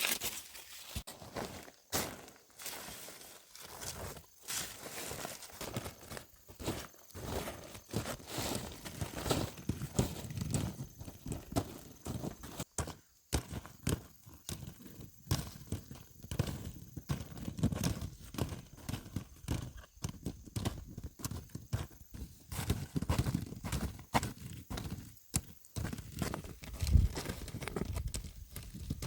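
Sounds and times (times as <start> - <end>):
horse hooves clip-clopping: 8.5 - 29.0.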